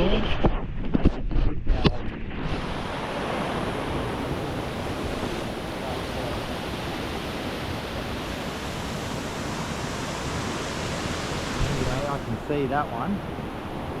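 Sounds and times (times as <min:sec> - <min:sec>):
waterfall rushing: 0:02.8 - 0:14.0.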